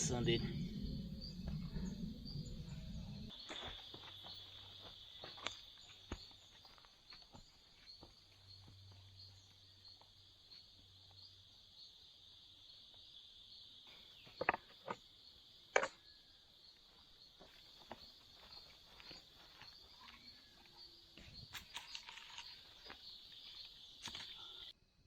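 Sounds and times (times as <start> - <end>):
insects chirring: 0.0 - 25.0
sharp clicks and knocks: 15.8 - 16.0.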